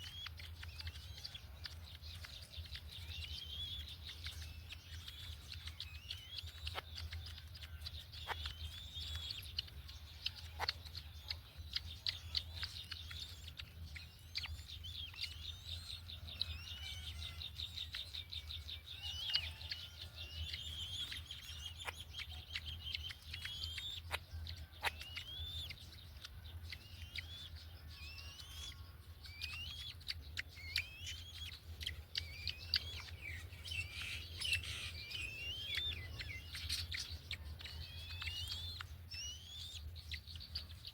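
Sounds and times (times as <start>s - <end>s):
birds chirping: 0.0s - 40.9s.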